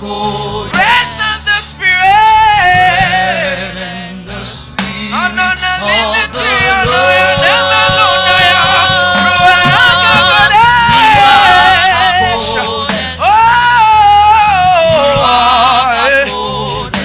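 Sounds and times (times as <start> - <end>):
instrumental backing: 0.0 - 17.0
person singing with vibrato: 5.0 - 17.0.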